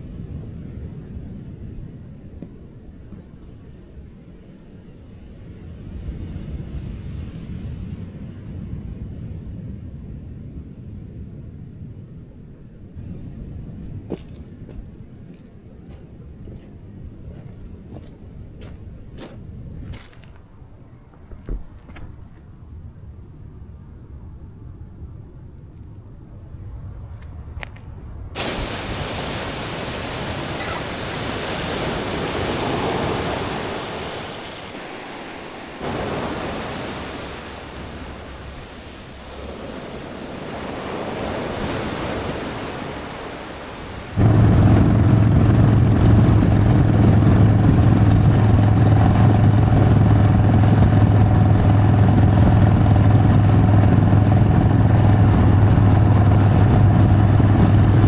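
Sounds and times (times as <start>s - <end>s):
ocean surf washing in and out: 28.4s - 58.0s
motorcycle engine running: 44.2s - 58.0s.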